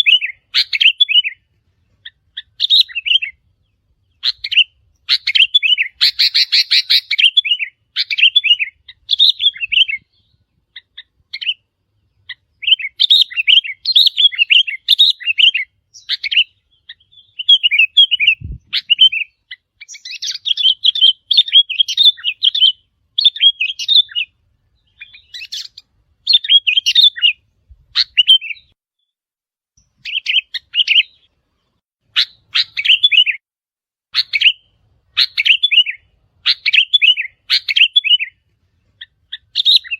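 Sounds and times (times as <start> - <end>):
bulbul chirping song: 0.0 - 29.1, 29.8 - 33.4, 34.1 - 39.9.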